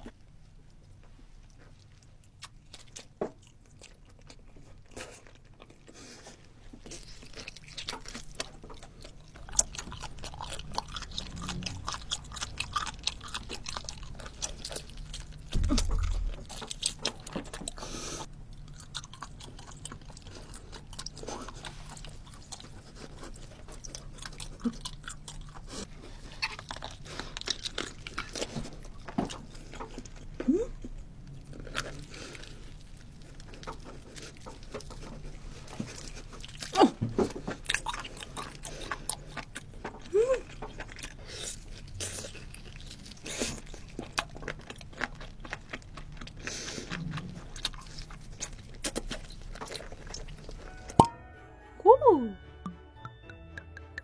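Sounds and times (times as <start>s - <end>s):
person chewing crunchy food: 0.0s - 51.0s
loud thump: 15.5s - 16.6s.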